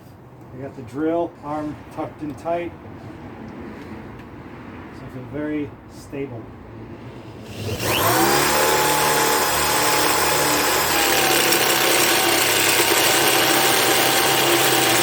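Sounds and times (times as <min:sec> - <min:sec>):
hand drill whining under load: 0:07.4 - 0:15.0.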